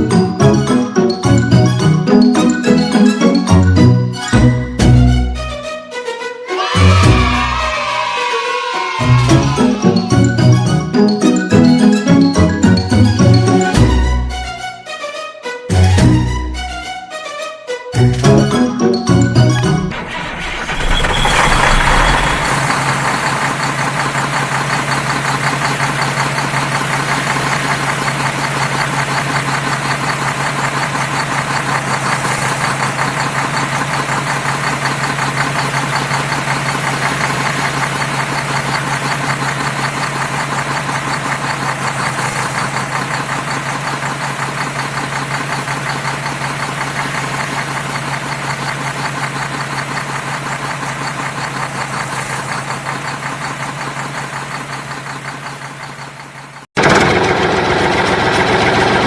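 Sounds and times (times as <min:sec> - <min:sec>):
engine idling: 0:18.0 - 0:59.0.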